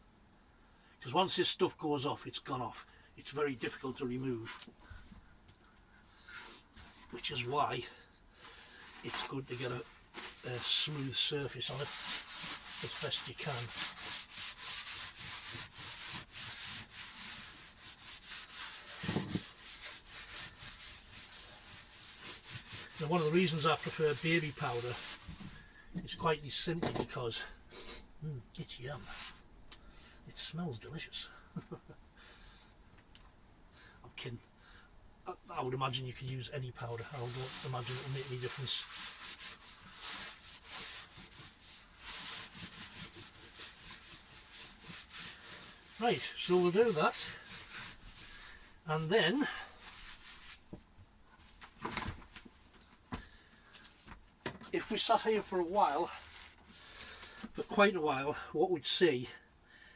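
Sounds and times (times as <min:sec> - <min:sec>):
rubbing strokes on plywood floor: 0:08.4 - 0:25.7, 0:29.0 - 0:29.4, 0:36.8 - 0:53.0, 0:54.8 - 0:57.7.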